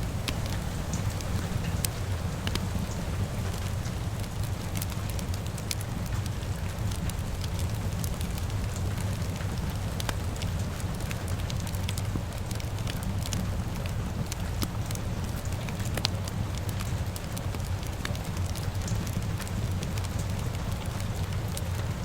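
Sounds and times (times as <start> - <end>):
rain hissing: 0.0 - 15.7
wood fire crackling: 0.0 - 22.0.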